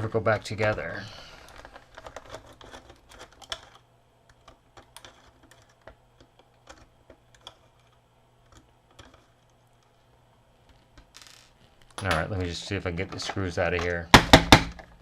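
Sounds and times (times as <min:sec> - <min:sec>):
screwdriver and plastic parts clicking: 0:01.5 - 0:09.3.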